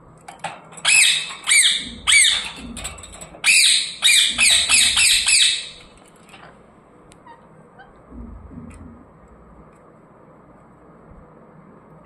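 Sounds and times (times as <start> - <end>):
parrot screeching squawks: 0.8 - 2.6, 3.4 - 5.8.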